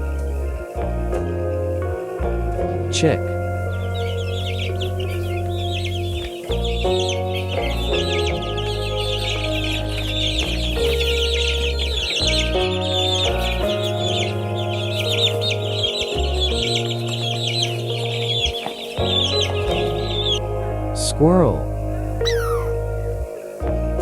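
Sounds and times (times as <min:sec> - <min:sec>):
background music with bass line: 0:00.0 - 0:24.0
baby chicks peeping: 0:02.8 - 0:20.4, 0:22.2 - 0:22.9.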